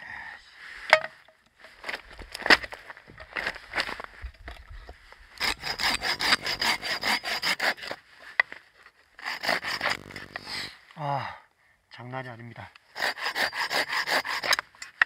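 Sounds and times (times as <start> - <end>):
hand saw cutting log: 5.4 - 8.0, 9.2 - 10.7, 12.9 - 14.7.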